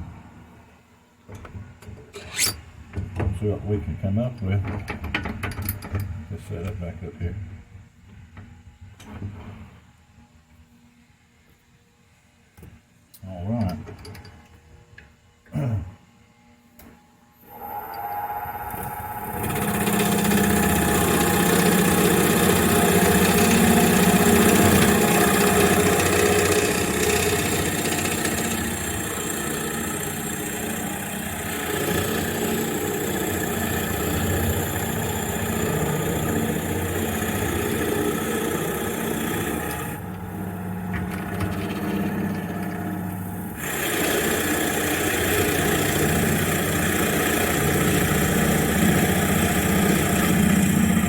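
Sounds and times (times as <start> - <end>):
drill bit cutting wood hiss: 17.4 - 51.0
lathe motor humming: 17.4 - 51.0.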